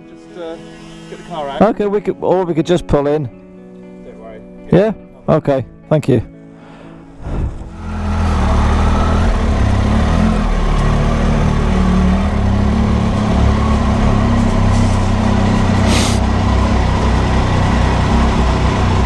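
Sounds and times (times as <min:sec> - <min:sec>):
brief hiss: 0:00.5 - 0:01.6, 0:15.8 - 0:16.3
motorcycle engine running: 0:07.6 - 0:19.0.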